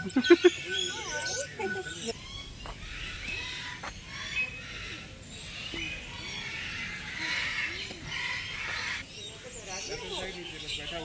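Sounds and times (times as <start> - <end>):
birds chirping and squawking: 0.0 - 11.0.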